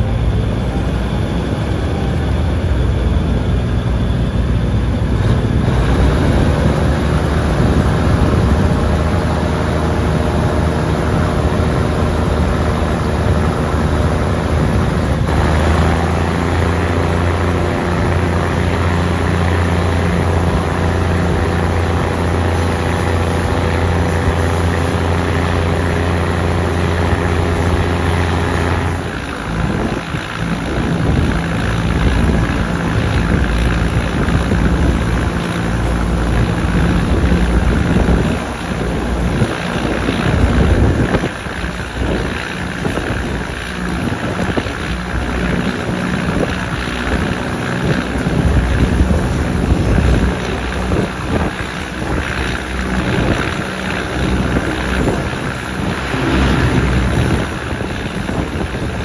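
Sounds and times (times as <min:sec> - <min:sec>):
train diesel engine hum: 0:00.0 - 0:59.0.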